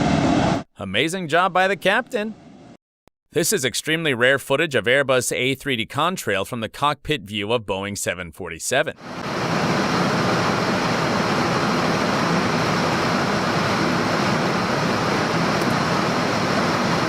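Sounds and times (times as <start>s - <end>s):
airflow and engine rushing: 0.0s - 0.7s, 9.0s - 17.0s.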